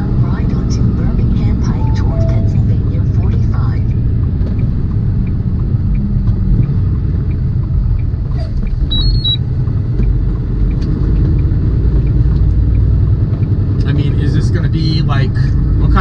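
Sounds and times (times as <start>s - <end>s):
road noise: 0.0s - 16.0s
truck diesel engine rumble: 0.0s - 16.0s
two-note electronic beep: 1.7s - 2.7s.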